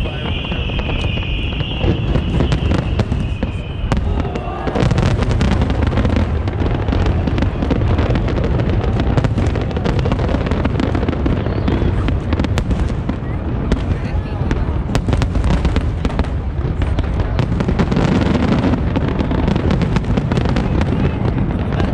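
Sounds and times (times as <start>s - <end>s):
high whistling tone: 0.0s - 4.5s
fireworks bangs and crackles: 0.0s - 21.9s.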